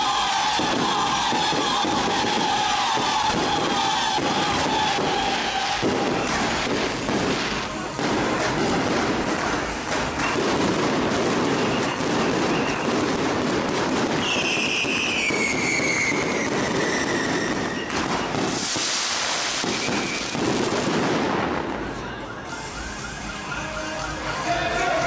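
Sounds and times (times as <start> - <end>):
fireworks crackling: 0.0 - 25.0
fireworks whistling: 0.0 - 25.0
loud hissing burst: 14.8 - 20.4.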